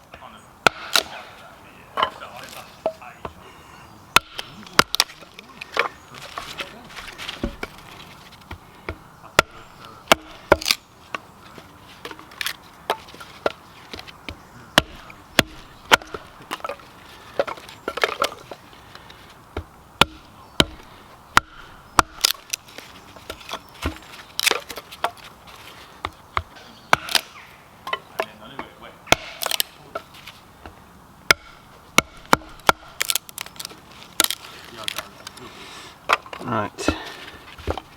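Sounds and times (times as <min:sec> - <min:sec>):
axe chopping wood: 0:00.6 - 0:01.2, 0:04.1 - 0:11.2, 0:12.0 - 0:18.5, 0:19.6 - 0:25.3, 0:26.0 - 0:33.5, 0:34.2 - 0:35.0, 0:36.1 - 0:37.9.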